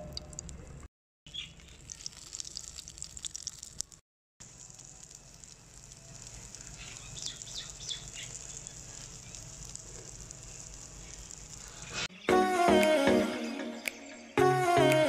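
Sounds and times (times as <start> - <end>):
food sizzling in oil: 1.3 - 12.1.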